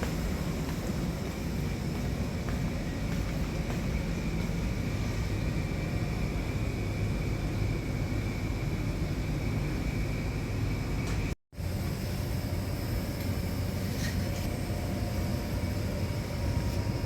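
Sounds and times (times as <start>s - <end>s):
engine-room machinery drone: 0.0s - 17.0s
thin steady whine: 0.0s - 17.0s.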